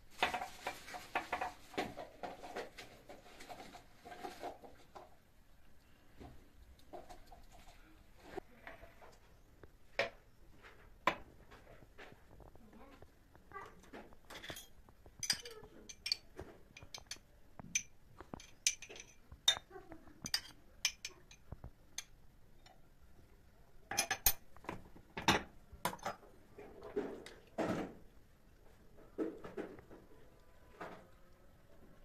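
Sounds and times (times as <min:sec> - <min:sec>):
clinks and knocks of small objects: 0:00.1 - 0:02.8, 0:13.6 - 0:22.8, 0:23.9 - 0:27.8.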